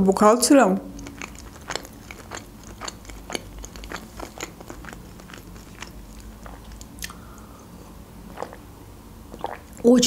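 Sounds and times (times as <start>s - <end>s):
chewing food with wet clicks: 0.9s - 7.5s, 8.3s - 8.6s, 9.3s - 9.9s.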